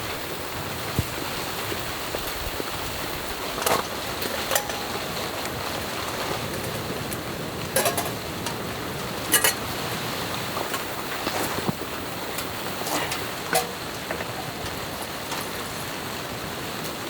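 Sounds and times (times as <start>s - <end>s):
rain pattering on tent: 0.0s - 17.0s
kitchenware clinking: 4.3s - 5.2s, 7.8s - 8.2s, 9.3s - 9.7s, 12.9s - 15.6s.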